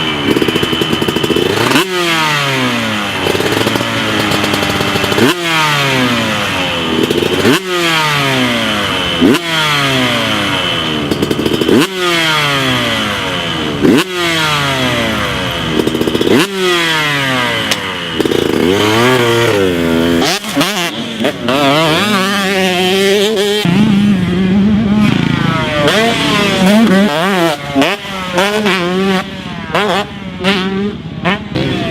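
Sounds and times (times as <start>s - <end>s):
motocross bike engine revving: 0.0s - 31.9s.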